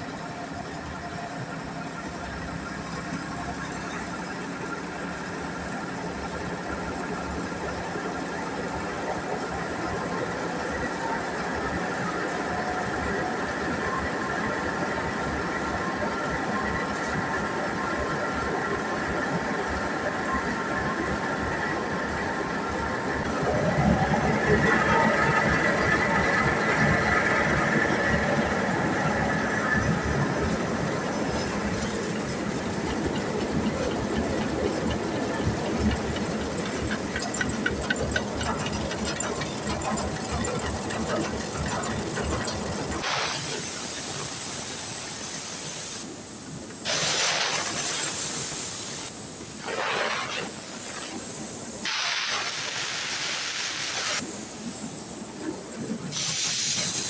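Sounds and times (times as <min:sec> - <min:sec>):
pressure washer jet hissing: 0:43.0 - 0:57.0.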